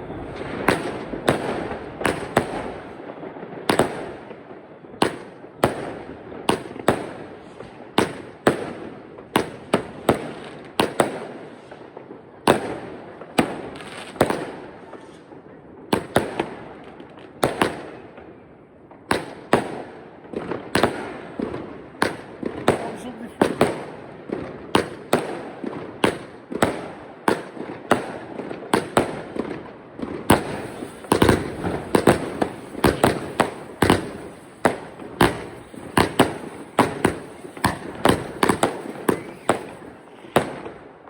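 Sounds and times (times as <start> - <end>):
firework bangs: 0.0 - 18.3, 19.0 - 41.0
firework hiss: 30.3 - 40.4.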